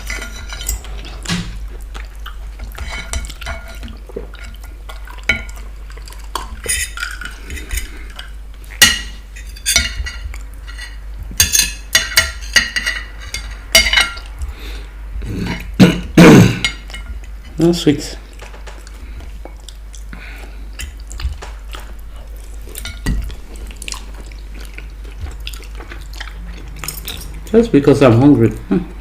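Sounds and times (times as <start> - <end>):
cutlery clinking on a plate: 6.4 - 14.3.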